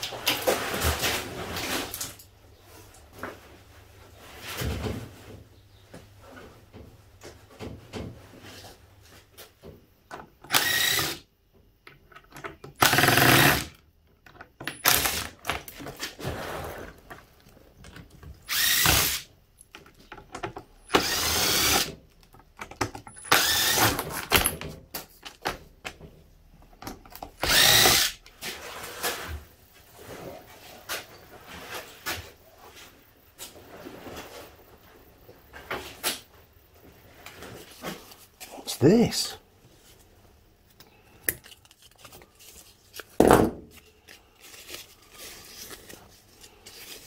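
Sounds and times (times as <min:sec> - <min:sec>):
cordless drill short bursts: 0:10.5 - 0:11.2, 0:12.8 - 0:13.7, 0:18.5 - 0:19.3, 0:20.9 - 0:21.9, 0:23.3 - 0:24.0, 0:27.4 - 0:28.2.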